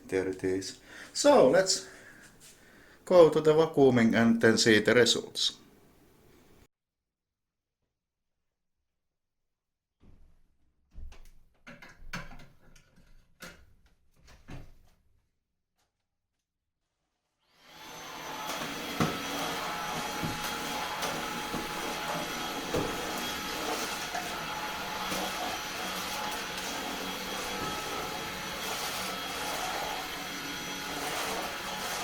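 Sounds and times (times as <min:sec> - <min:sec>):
stick vacuum motor whine: 0:17.6 - 0:32.0.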